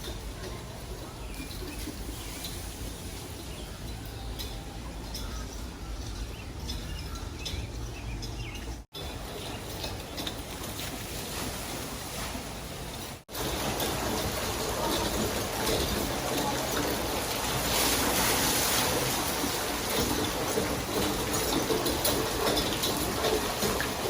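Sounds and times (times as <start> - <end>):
birds chirping: 0.0 - 10.8
running water: 0.0 - 24.0.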